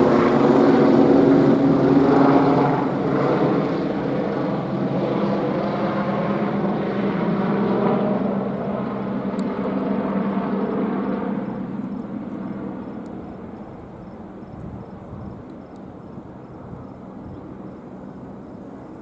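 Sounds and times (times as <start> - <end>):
helicopter rotor and turbine: 0.0 - 19.0.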